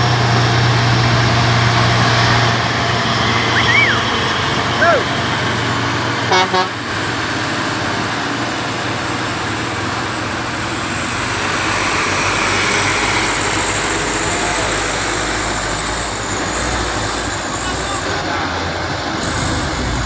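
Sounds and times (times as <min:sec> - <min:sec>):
heavy trucks labouring uphill: 0:00.0 - 0:20.0
horn blasts: 0:06.3 - 0:06.8.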